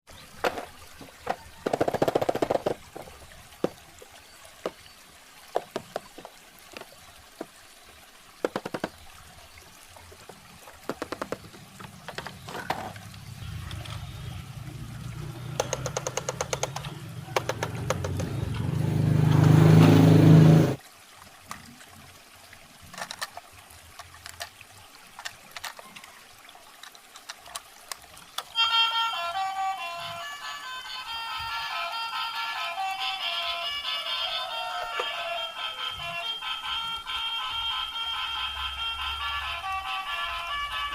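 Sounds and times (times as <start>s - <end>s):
running water: 0.1s - 40.9s
toy and packaging clicks: 0.4s - 3.0s, 23.0s - 23.4s, 24.0s - 24.6s, 25.2s - 26.1s, 26.8s - 28.6s.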